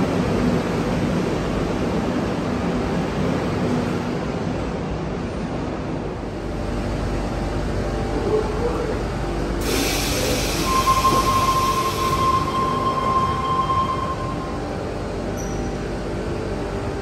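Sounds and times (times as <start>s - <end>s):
electric train rumbling away: 0.0s - 17.0s
train standing with doors open: 0.0s - 17.0s
steady high tone: 10.6s - 15.6s.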